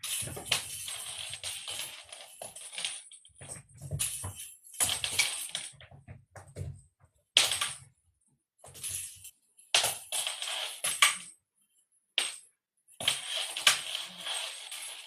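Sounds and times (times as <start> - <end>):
cat toy jingling and rattling: 0.0 - 5.5.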